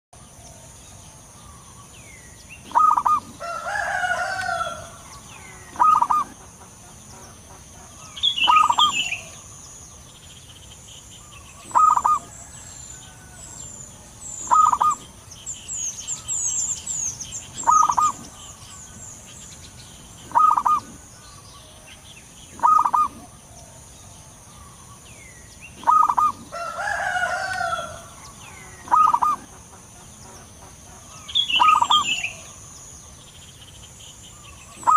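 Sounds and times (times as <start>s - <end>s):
small birds chirping: 0.2s - 34.9s
dove calling: 1.3s - 33.0s, 34.3s - 34.9s
rooster crowing: 3.0s - 6.2s, 11.7s - 15.0s, 26.1s - 29.4s.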